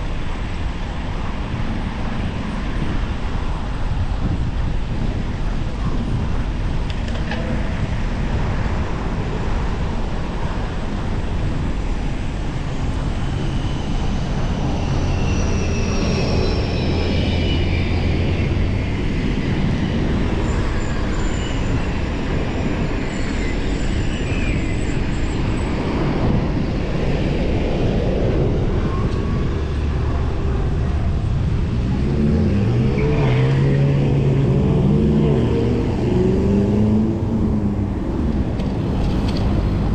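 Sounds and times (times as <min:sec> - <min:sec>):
passing cars and road noise: 0:00.0 - 0:39.9
vehicle engine accelerating past: 0:30.7 - 0:39.9.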